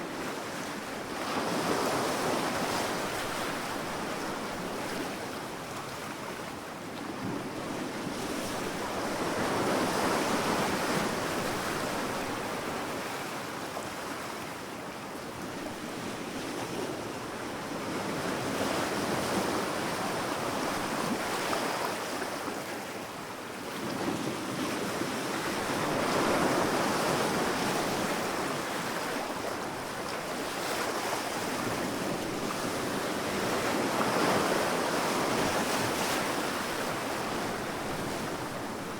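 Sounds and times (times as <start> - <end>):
wind: 0.0 - 38.9
waves breaking on beach: 15.5 - 38.9.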